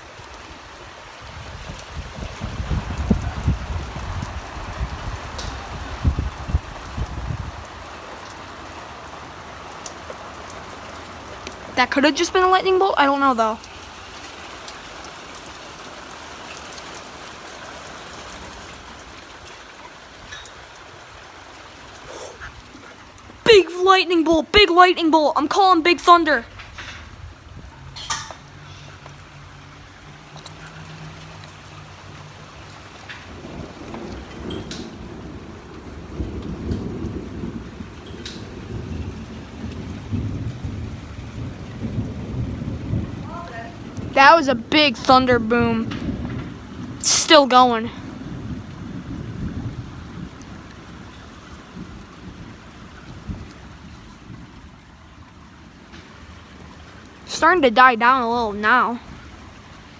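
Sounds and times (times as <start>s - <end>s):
steady rain hissing: 0.0s - 59.9s
faint drip ticks: 8.2s - 11.7s, 30.1s - 35.1s, 43.9s - 44.1s
thunder rumbling: 33.2s - 54.8s.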